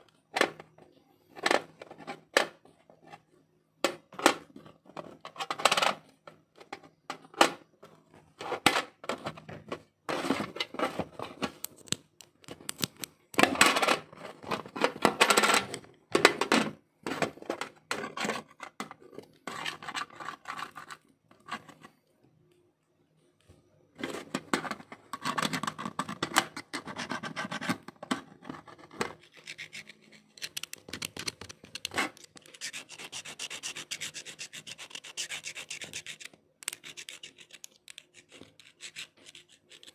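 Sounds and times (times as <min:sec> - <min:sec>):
clicks and scraping on laptop: 0:17.1 - 0:22.1, 0:24.0 - 0:39.9
plastic and metal rubbing: 0:24.0 - 0:39.9.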